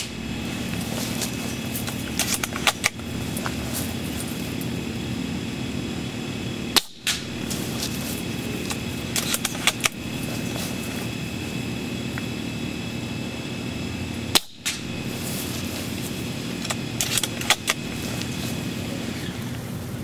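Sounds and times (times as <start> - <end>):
steady background noise: 0.0 - 20.0
airsoft rifle snaps and clicks: 6.8 - 7.5, 14.4 - 14.9.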